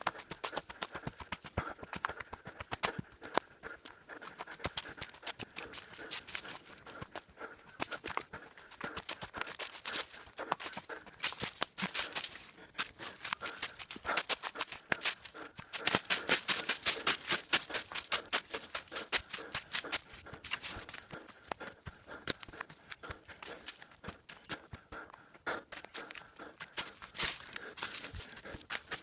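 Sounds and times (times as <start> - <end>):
footsteps on rocky trail: 0.0 - 29.0.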